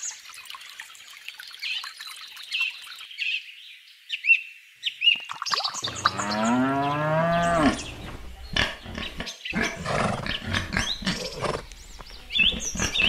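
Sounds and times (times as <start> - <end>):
cow mooing: 5.9 - 11.5.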